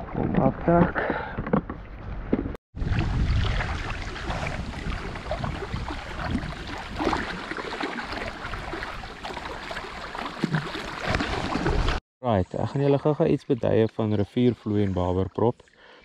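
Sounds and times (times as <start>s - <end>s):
small splashes: 2.8s - 12.0s.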